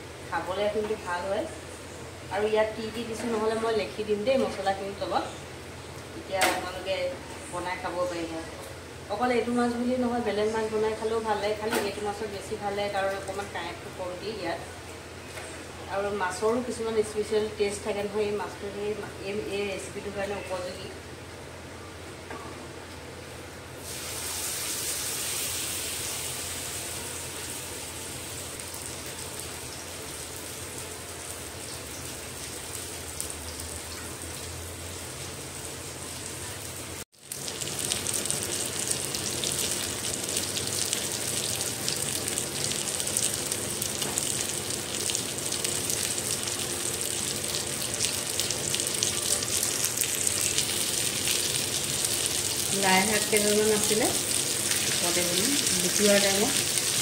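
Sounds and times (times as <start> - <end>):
fish sizzling in oil: 23.8 - 57.0.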